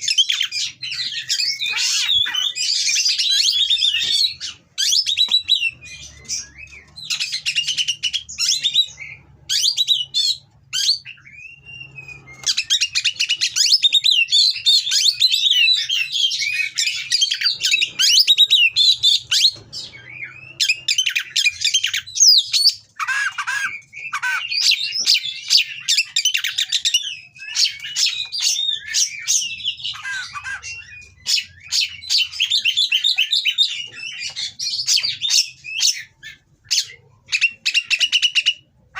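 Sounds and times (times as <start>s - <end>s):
bird singing varied song: 0.0s - 38.9s.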